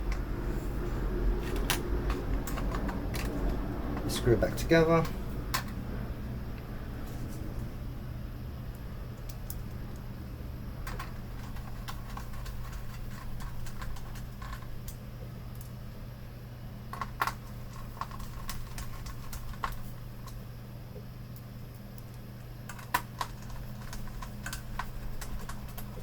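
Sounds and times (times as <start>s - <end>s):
steady low hum: 0.0s - 26.0s
clicks and taps of screws and parts: 1.4s - 4.1s.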